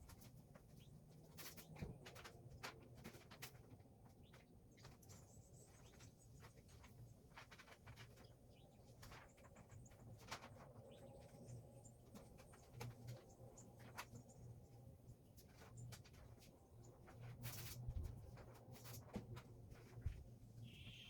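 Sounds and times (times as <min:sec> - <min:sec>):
faint high chirps: 0:20.6 - 0:21.0.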